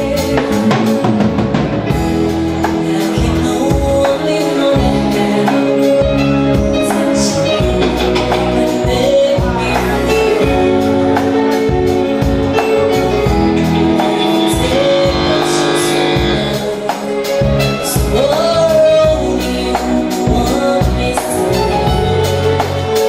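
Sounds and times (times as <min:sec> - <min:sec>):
live fusion band music: 0:00.0 - 0:23.0
drum and cymbal beat: 0:07.6 - 0:18.6
person singing: 0:12.7 - 0:22.3.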